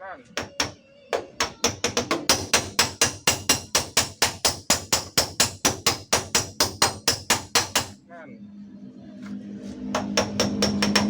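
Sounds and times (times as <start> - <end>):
hammer tapping on steel panel: 0.4 - 8.0, 10.0 - 11.0.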